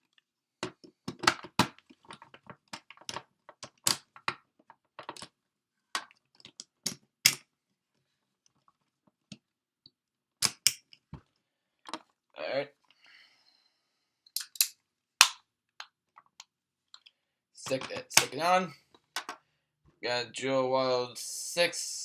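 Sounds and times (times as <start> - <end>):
plastic toy parts clicking: 10.4 - 10.9, 14.4 - 17.1, 19.2 - 19.4
loud plastic snap: 14.4 - 15.4.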